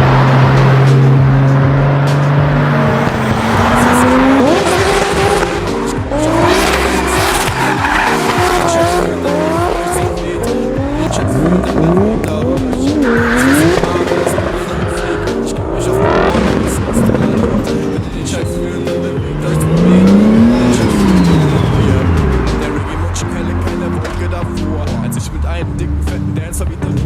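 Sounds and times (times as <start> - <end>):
background music: 0.0 - 27.0
car engine revving hard: 0.0 - 27.0
tyres squealing: 0.0 - 27.0.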